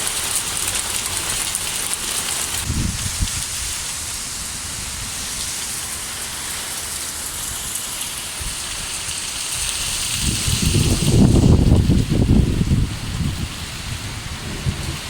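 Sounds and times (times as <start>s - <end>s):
rain falling on surfaces: 0.0s - 15.0s
low thunder rumble: 2.6s - 6.4s, 9.6s - 15.0s.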